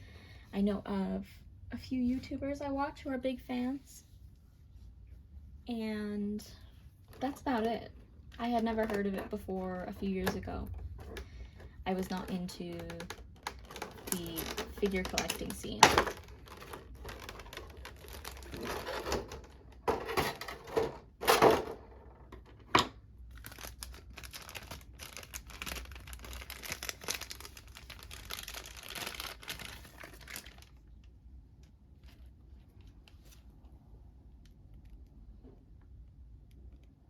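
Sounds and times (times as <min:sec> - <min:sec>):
plastic and cardboard crinkling: 0:07.1 - 0:31.1.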